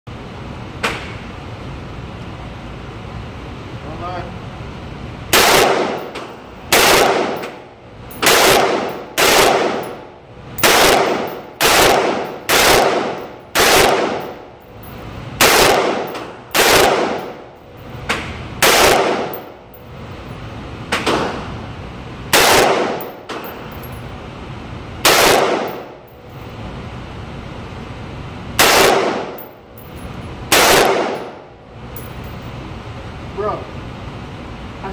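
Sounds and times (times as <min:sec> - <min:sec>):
rifle shots with echo: 0:05.3 - 0:07.6, 0:08.2 - 0:10.0, 0:10.6 - 0:14.4, 0:15.4 - 0:17.4, 0:18.6 - 0:19.5, 0:22.3 - 0:23.6, 0:25.0 - 0:25.9, 0:28.6 - 0:29.5, 0:30.5 - 0:31.4.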